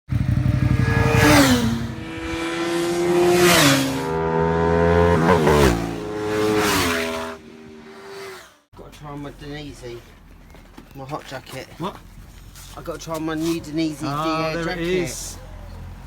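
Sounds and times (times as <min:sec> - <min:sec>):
motorcycle engine accelerating: 0:00.1 - 0:08.7.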